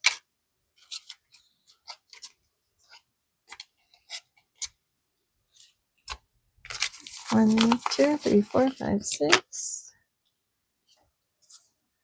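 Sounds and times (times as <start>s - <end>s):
paper banknotes rustling: 5.6s - 9.3s.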